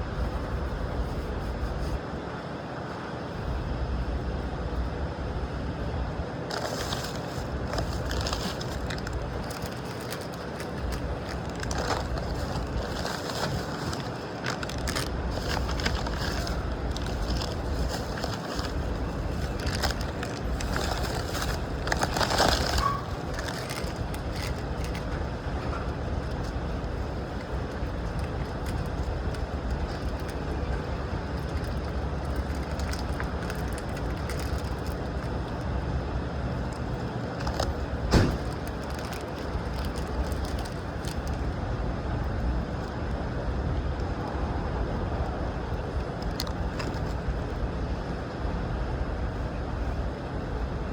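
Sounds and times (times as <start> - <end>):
vehicle running rumble: 0.0 - 50.9
microphone handling rustle: 6.5 - 25.1.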